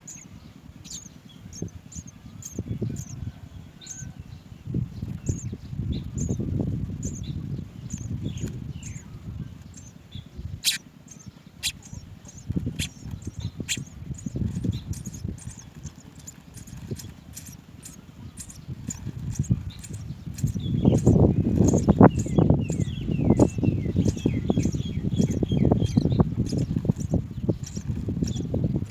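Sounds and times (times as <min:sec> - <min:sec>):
chicks chirping: 0:00.0 - 0:03.2, 0:10.6 - 0:28.9.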